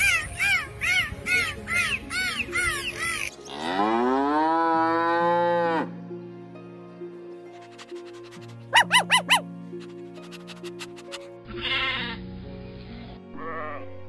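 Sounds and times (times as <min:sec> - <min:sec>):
background music: 0:00.0 - 0:14.0
cow mooing: 0:03.5 - 0:05.9
short squeaky calls: 0:08.8 - 0:09.4.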